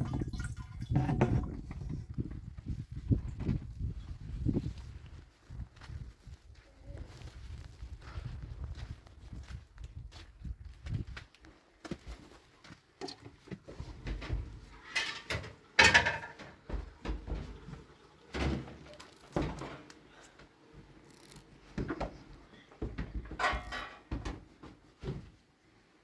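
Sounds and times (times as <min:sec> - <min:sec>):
objects knocking and thudding: 0:00.0 - 0:02.2, 0:13.0 - 0:19.9, 0:21.7 - 0:25.4.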